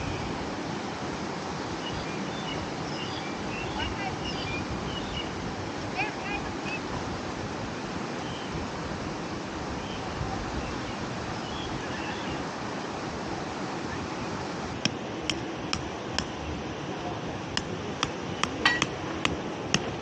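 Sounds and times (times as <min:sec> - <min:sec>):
tent pegs hammered metallic strikes: 0:17.6 - 0:19.9.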